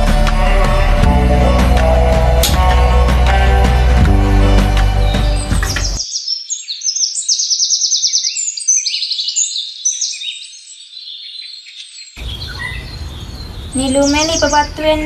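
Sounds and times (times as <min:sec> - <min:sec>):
background music: 0:00.0 - 0:06.0
birds singing and chirping: 0:05.0 - 0:15.0.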